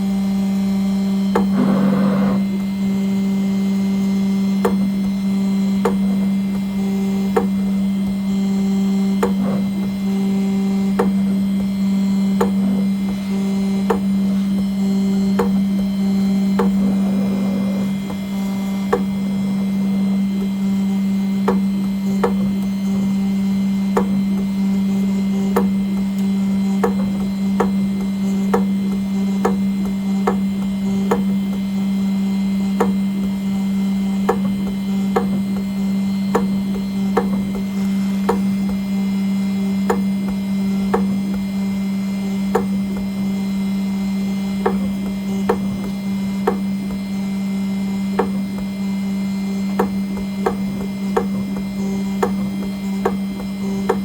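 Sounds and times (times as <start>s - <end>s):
engraving machine hum: 0.0s - 54.0s.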